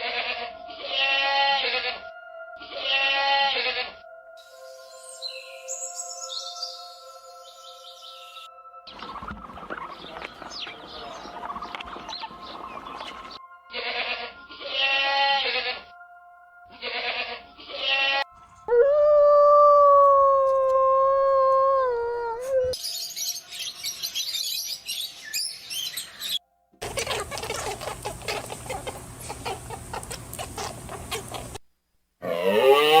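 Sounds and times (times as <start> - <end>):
goat bleating: 0.0 - 2.0, 2.6 - 4.0, 13.7 - 15.8, 16.7 - 18.3.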